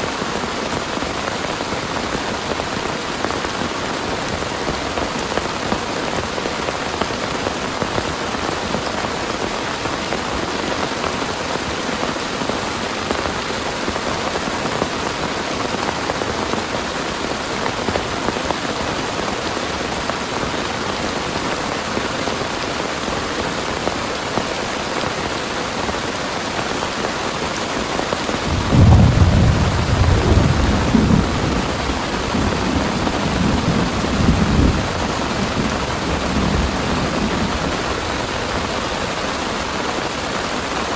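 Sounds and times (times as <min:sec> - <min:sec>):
heavy rain pouring: 0:00.0 - 0:40.9
thunder rumbling: 0:28.4 - 0:38.7.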